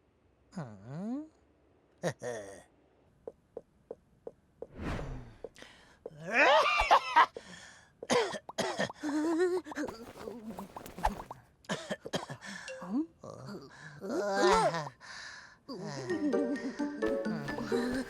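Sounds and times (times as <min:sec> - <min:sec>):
swish: 0:04.7 - 0:05.5
cartoon vocal grunts: 0:13.3 - 0:14.9.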